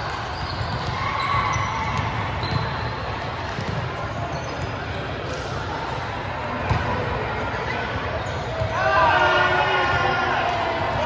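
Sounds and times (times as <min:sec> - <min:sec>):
sneaker squeaks on court: 0:00.3 - 0:05.0.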